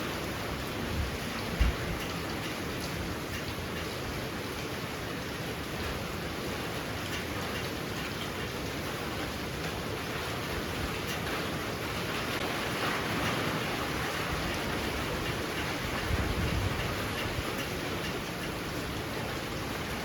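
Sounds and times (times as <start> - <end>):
low wind rumble: 0.0 - 4.3, 11.6 - 20.0
heavy rain pouring: 0.0 - 20.0.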